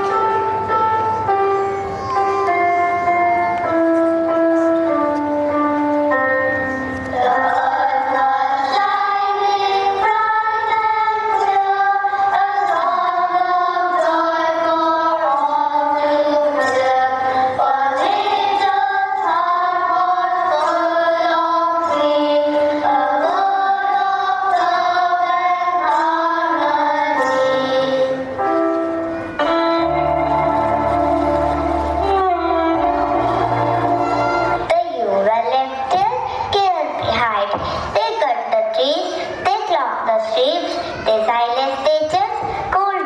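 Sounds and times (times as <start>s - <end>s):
song with singing: 6.5s - 34.7s.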